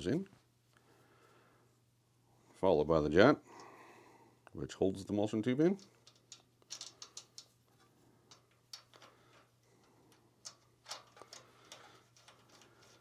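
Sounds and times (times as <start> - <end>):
small metal parts clicking: 5.7 - 13.0.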